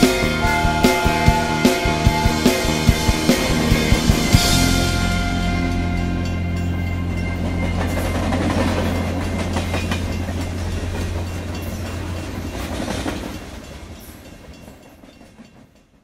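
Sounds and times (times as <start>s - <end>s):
train low drone: 0.0s - 15.8s
wheels clicking over rail joints: 6.5s - 16.0s.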